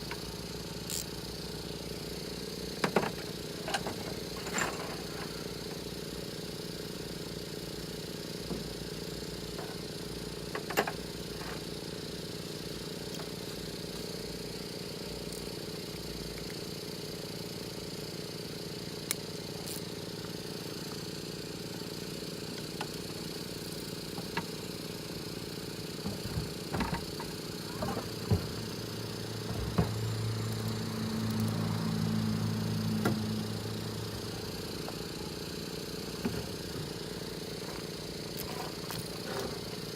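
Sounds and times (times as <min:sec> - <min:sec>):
steady mechanical hum: 0:00.0 - 0:39.9.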